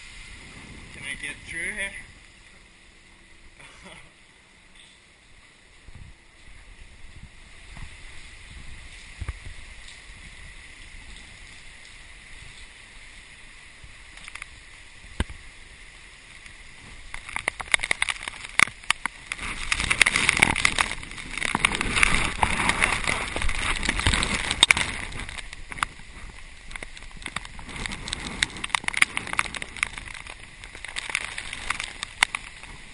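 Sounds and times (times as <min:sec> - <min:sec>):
wind buffeting camera: 0:05.8 - 0:12.7, 0:16.6 - 0:32.9.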